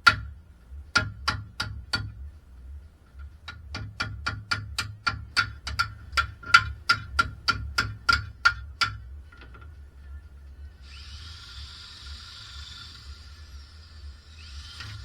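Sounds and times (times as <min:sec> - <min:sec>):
hammer tapping on metal: 0:00.0 - 0:02.3, 0:03.2 - 0:09.7.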